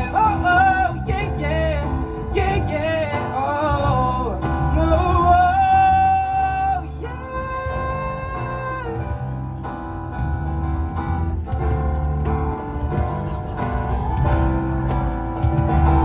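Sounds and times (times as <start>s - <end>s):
man singing wordless ad-libs: 0.0s - 9.4s
acoustic band playing: 0.0s - 16.0s.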